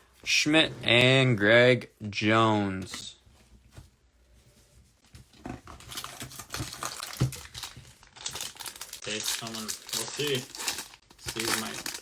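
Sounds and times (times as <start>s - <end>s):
card pack wrapper crinkling: 5.8s - 12.0s.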